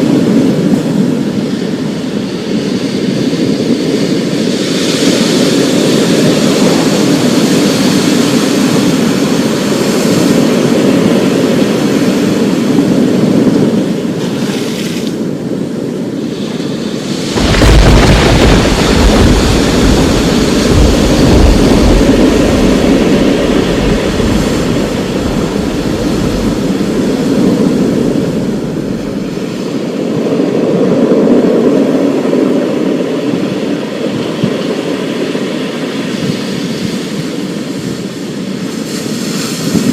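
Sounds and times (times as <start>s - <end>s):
rain and wind rushing: 0.0s - 39.9s
thunder clap rumbling: 16.9s - 32.6s.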